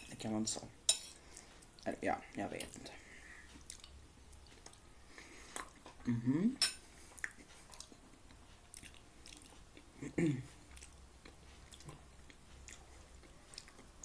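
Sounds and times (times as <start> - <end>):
person chewing food: 2.6 - 6.1, 7.0 - 14.0
short hum-like vocal sound: 6.0 - 6.6.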